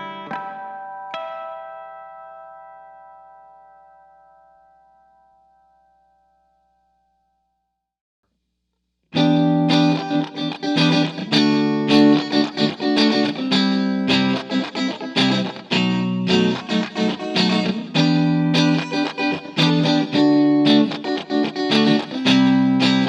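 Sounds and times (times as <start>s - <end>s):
electric guitar chords with reverb: 0.0s - 4.4s, 9.2s - 23.0s.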